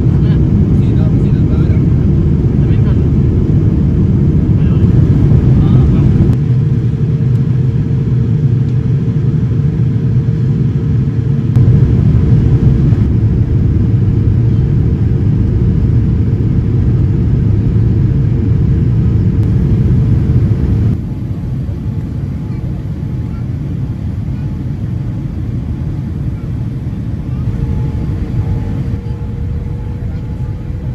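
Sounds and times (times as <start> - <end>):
jet cabin rumble: 0.0 - 30.9.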